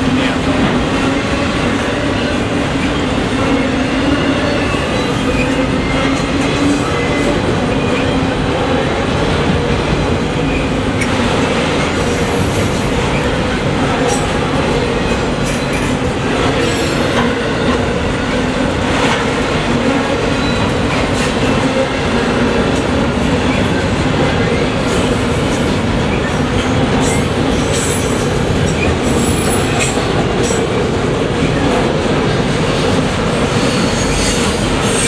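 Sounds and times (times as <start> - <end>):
freight train rumbling past: 0.0 - 35.0
high wheel squeals: 33.4 - 35.0.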